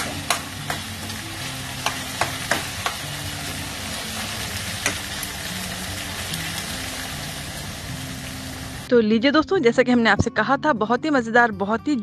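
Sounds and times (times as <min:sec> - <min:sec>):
liver sizzling in a pan: 0:00.0 - 0:08.9.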